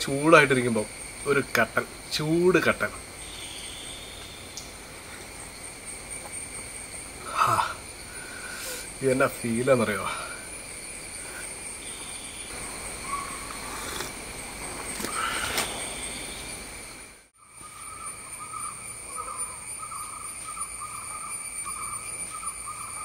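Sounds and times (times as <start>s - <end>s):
insect trills: 0.0s - 23.0s
low pulsing insect chirring: 0.0s - 23.0s.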